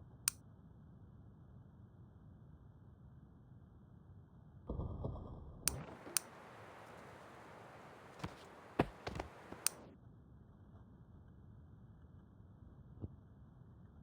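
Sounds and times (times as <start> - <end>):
sharp clicks or taps: 5.7 - 7.4, 8.1 - 9.8
faint hiss: 5.7 - 9.8.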